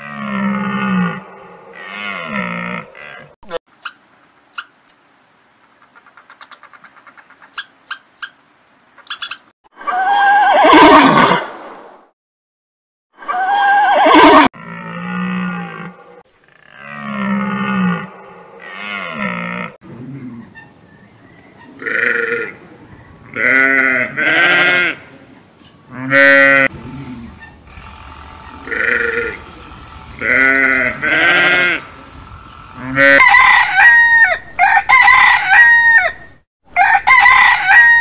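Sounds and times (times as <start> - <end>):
horse whinnying: 9.9 - 11.4, 13.3 - 14.5
sheep bleating: 23.3 - 25.0, 25.9 - 32.0.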